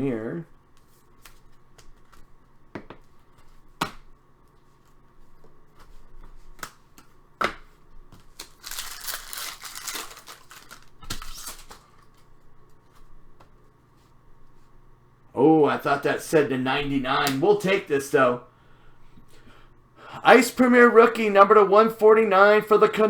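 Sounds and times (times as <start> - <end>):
cards and wrapper rustling: 8.2 - 12.3.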